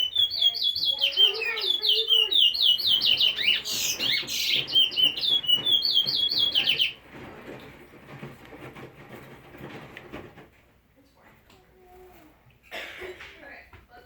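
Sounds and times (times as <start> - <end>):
pet bird chirping: 0.0 - 7.0
harsh bird calls: 0.0 - 7.1.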